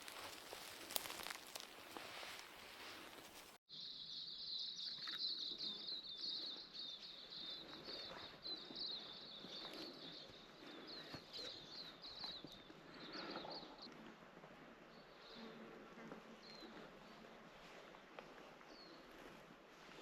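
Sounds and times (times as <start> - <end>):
faint rustles in vegetation: 0.0 - 3.6
rustling: 0.0 - 3.6.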